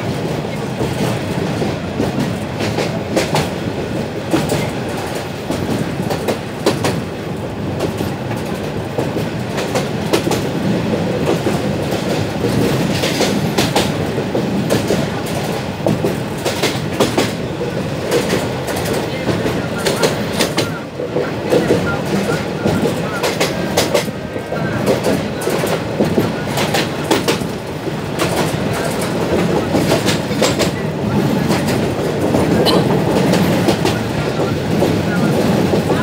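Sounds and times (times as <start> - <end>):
train wheels rumbling on rails: 0.0 - 36.0
clatter over rail joints: 7.8 - 20.8, 21.4 - 36.0.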